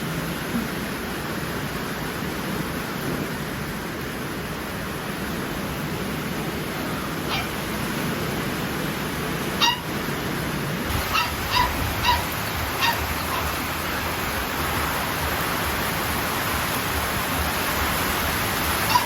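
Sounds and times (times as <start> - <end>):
small animal high-pitched calls: 7.2 - 7.6, 9.6 - 10.0, 10.9 - 13.6.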